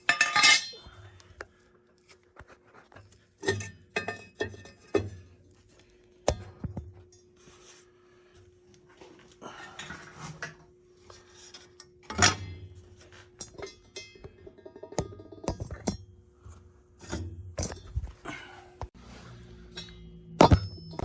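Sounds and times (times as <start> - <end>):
metal burners clanking: 0.0 - 0.9, 9.5 - 16.1
faint steady hum: 0.0 - 21.0.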